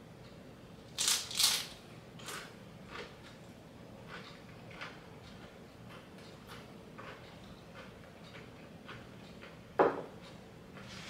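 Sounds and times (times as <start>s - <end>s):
chips being chewed: 1.0s - 3.4s.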